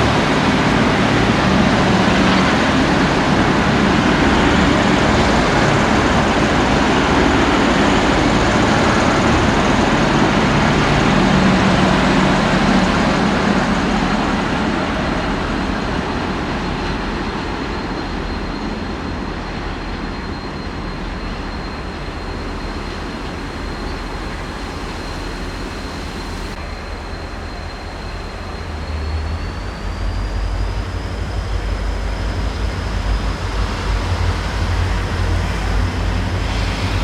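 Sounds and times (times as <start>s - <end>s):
diesel train engine hum: 0.0s - 37.0s.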